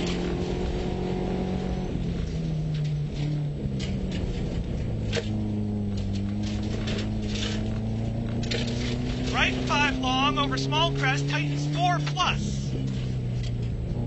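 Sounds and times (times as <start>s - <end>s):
rally car engine revving: 0.0s - 14.0s
sharp ticks and knocks: 2.6s - 9.4s.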